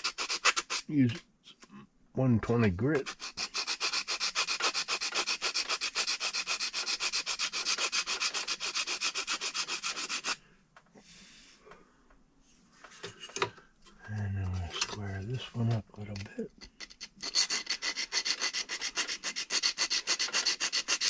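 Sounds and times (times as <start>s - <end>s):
sandpaper rubbing on plastic: 0.0s - 0.9s, 3.0s - 10.4s, 17.0s - 21.0s.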